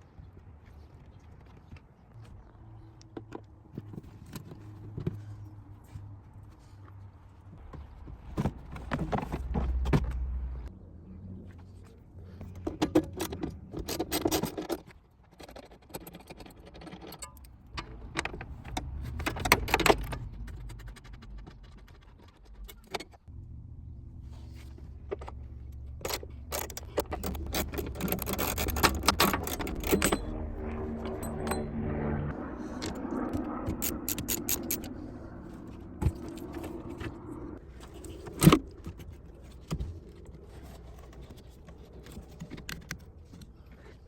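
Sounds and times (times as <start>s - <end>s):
steady low hum: 23.2s - 44.0s
metal tools clinking and rattling: 25.9s - 31.7s, 32.8s - 35.0s.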